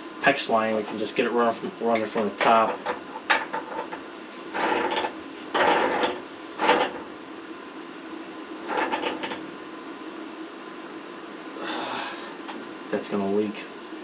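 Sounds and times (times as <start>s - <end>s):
faint steady hum: 0.0s - 14.0s
metal scraping and rattling: 0.8s - 7.1s, 8.6s - 9.4s.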